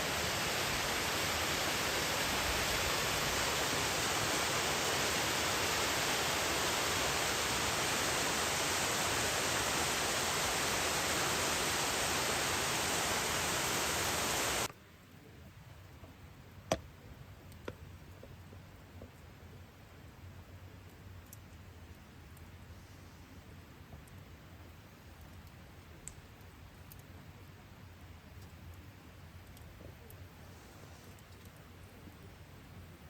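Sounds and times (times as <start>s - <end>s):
water rushing: 0.0s - 14.7s
faint sharp clicks: 24.0s - 24.3s, 25.2s - 27.2s, 29.4s - 30.2s.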